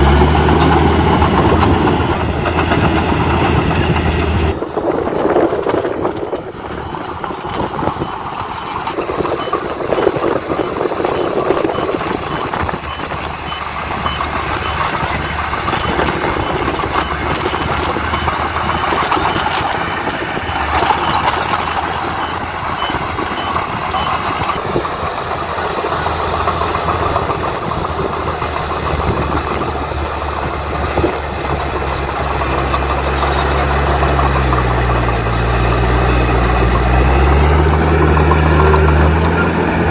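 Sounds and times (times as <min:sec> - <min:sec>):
heavy machinery diesel engine: 0:00.0 - 0:39.9
reversing alarm beeping: 0:08.0 - 0:31.6.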